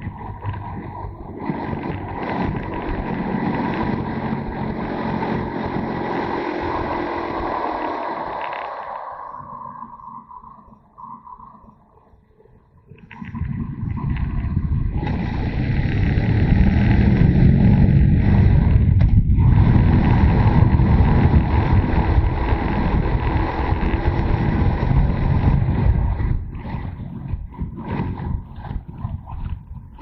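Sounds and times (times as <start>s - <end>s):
motorcycle engine running: 0.0s - 8.7s, 14.5s - 30.0s
wind rushing over microphone: 12.8s - 30.0s.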